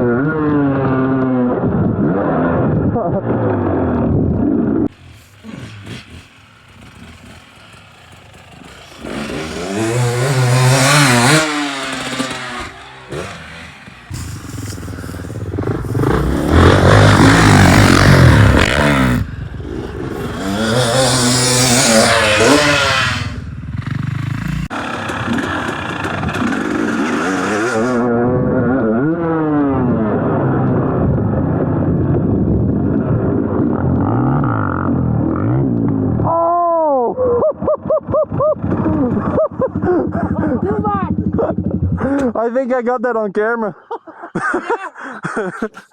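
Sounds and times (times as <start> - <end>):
dirt bike engines revving: 0.0 - 45.1.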